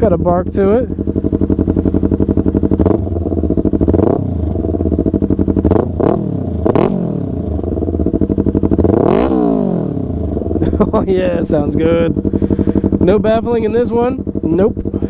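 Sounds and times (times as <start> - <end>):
motorcycle engine idling: 0.0 - 15.0
motorcycle throttle blips: 0.0 - 15.0.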